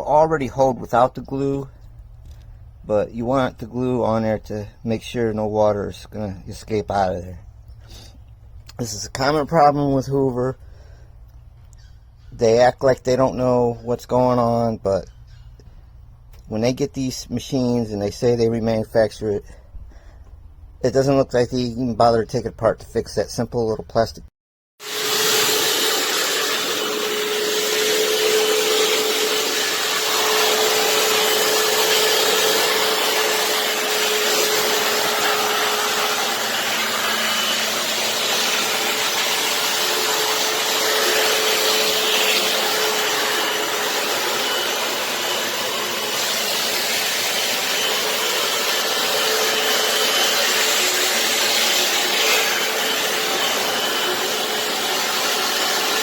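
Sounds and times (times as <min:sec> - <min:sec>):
electric motor running: 0:24.8 - 0:56.0.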